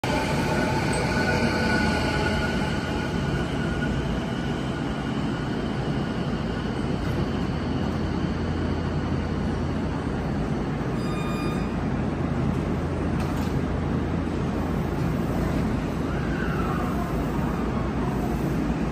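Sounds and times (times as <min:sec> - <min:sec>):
short electronic beep: 0:10.9 - 0:11.8.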